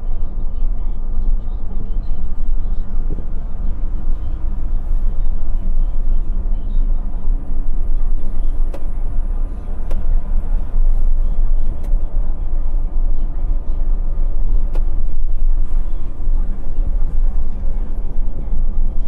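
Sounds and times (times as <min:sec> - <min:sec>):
diesel coach engine rumbling: 0:00.0 - 0:19.0.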